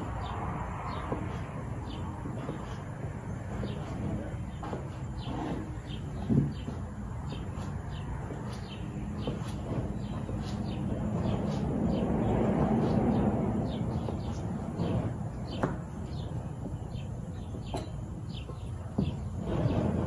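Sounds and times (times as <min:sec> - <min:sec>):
broad rushing noise: 0:00.0 - 0:20.0
songbirds chirping: 0:00.0 - 0:20.0.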